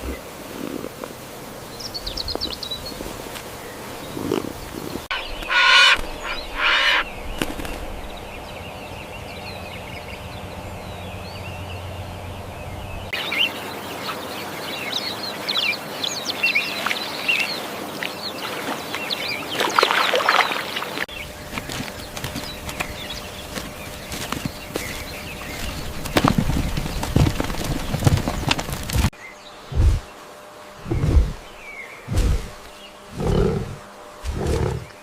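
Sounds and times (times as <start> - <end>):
poultry calling: 4.1 - 14.5, 32.6 - 35.0
poultry short chirps: 5.1 - 7.0.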